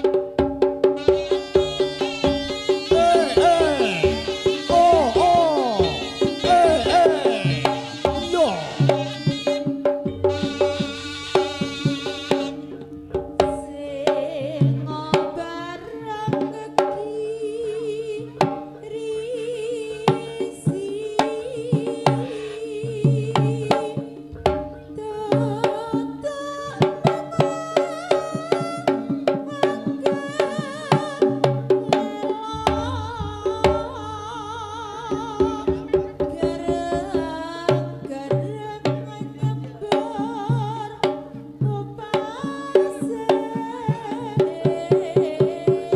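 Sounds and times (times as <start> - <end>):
hand drums beating: 0.0 - 45.9
held sustained tones: 0.8 - 13.9
reedy wavering melody: 0.9 - 13.9.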